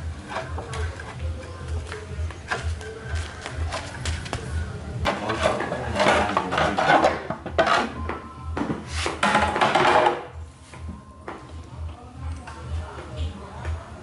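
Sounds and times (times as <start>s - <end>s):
hard objects scraping together: 5.0s - 8.0s.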